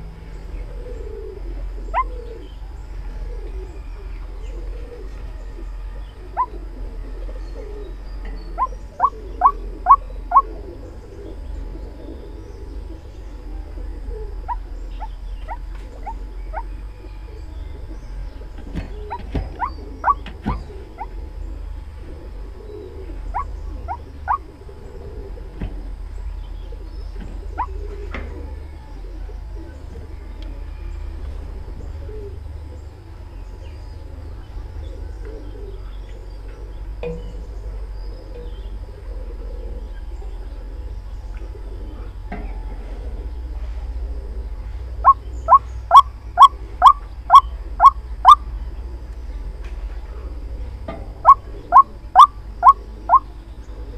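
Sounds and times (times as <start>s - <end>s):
bird calling rising notes: 0.0s - 49.6s, 50.2s - 53.9s
low steady hum: 0.0s - 53.9s
waterhen calling rising notes: 19.6s - 20.2s, 45.0s - 48.4s, 51.2s - 53.3s.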